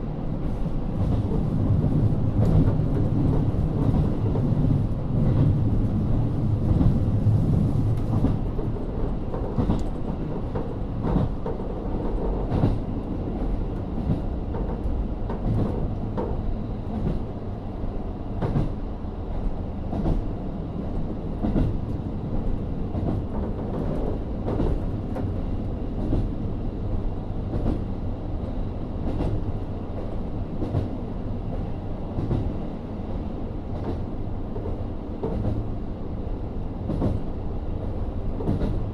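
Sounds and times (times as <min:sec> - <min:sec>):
wheels rumbling on rail: 0:00.0 - 0:38.9
rail-joint clicks: 0:06.6 - 0:17.4, 0:18.4 - 0:26.5, 0:27.4 - 0:32.6, 0:33.7 - 0:35.8, 0:36.8 - 0:38.9.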